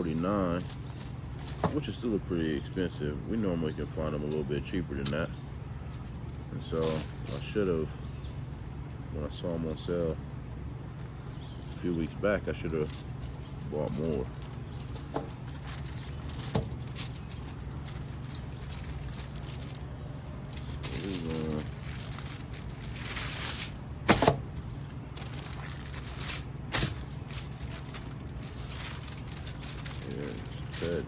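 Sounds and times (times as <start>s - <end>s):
high-pitched insect chorus: 0.0s - 31.0s
low steady hum: 0.0s - 31.0s
sharp knocks: 24.0s - 24.5s.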